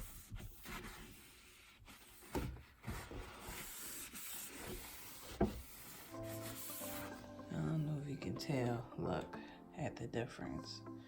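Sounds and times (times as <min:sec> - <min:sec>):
paper towel wiping cabinet: 0:00.0 - 0:07.2.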